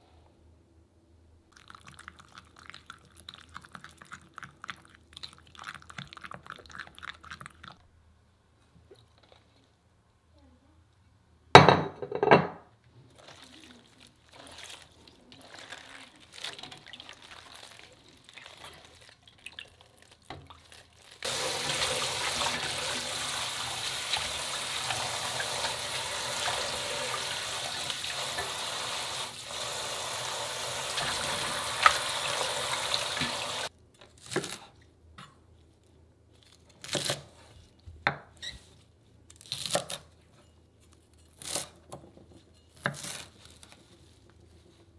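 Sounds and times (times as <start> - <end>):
tap water running into metal bowl: 21.2 - 33.7.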